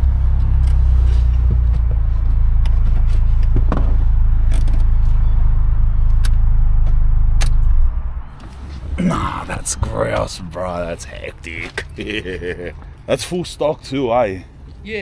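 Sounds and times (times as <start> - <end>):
car engine idling: 0.0 - 11.8.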